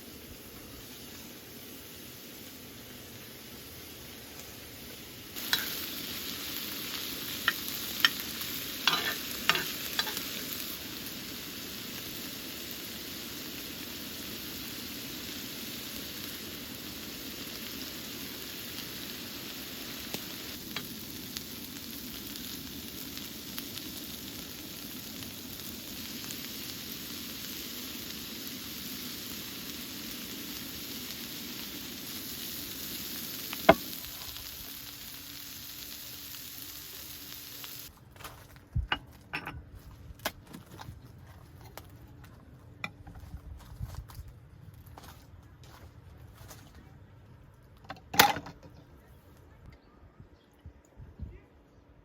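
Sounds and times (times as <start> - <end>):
food sizzling in a pan: 0.0 - 37.9.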